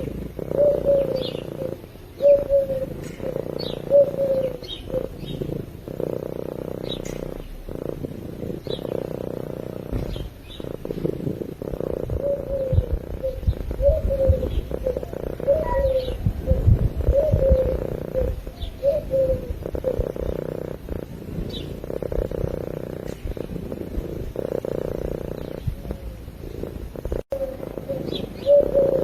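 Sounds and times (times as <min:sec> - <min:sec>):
bird cooing: 0:00.0 - 0:29.0
cat purring: 0:00.0 - 0:29.0
low thumps: 0:09.8 - 0:10.8
high bird chirps: 0:12.4 - 0:16.6.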